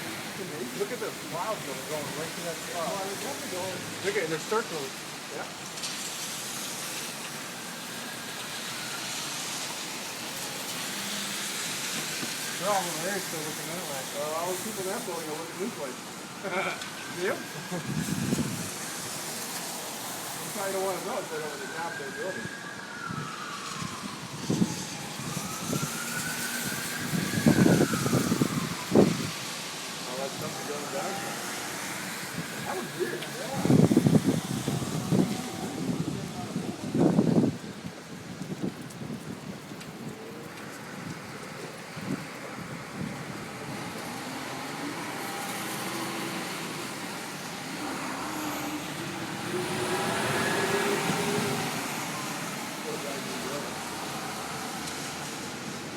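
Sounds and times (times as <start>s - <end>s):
siren wailing: 6.5s - 19.8s, 20.4s - 37.7s, 40.5s - 55.9s
motor vehicle passing by: 43.7s - 52.5s.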